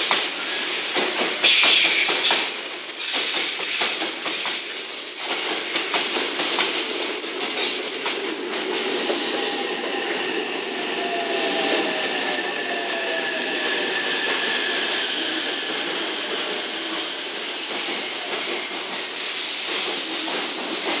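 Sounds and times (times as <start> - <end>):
falling whine of braking train: 0.1 - 21.0
wheel squeal: 8.9 - 19.1.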